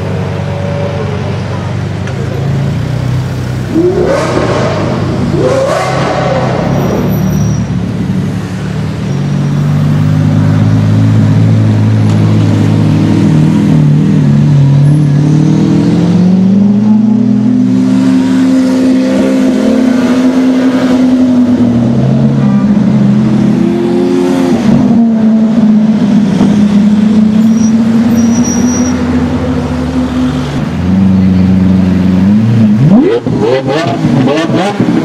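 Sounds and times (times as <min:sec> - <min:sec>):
deep car engine at low revs: 0:09.6 - 0:35.0.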